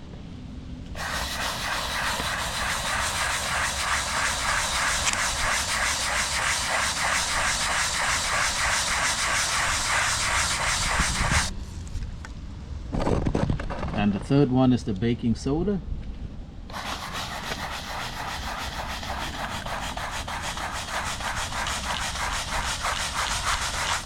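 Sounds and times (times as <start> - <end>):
scrub brush scrubbing concrete: 1.0 - 11.5, 16.7 - 24.0.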